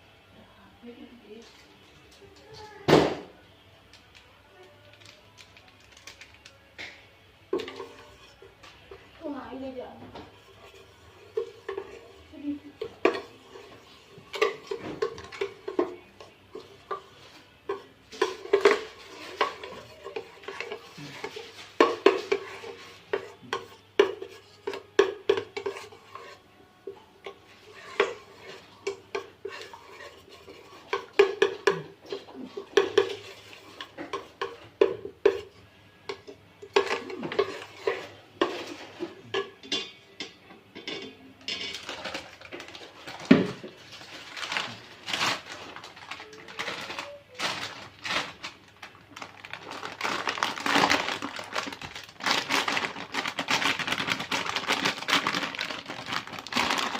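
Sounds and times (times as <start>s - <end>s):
spoon stirring in a bowl: 6.8s - 9.2s, 10.2s - 44.2s.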